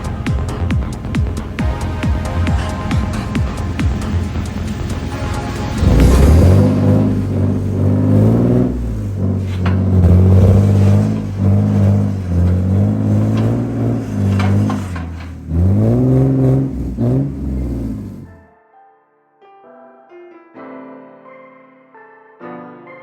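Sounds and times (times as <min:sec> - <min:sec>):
car engine accelerating: 0:00.0 - 0:18.4.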